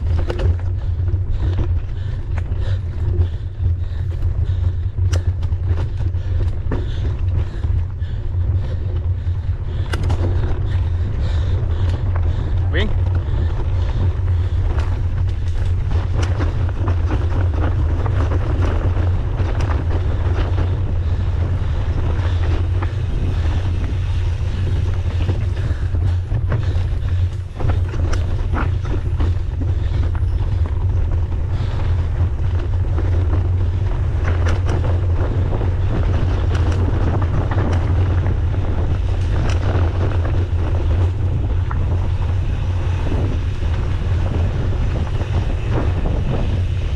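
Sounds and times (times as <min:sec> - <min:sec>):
bike rattles and clicks: 0:00.0 - 0:46.9
bike tyre noise: 0:00.0 - 0:46.9
wind buffeting microphone: 0:00.0 - 0:46.9.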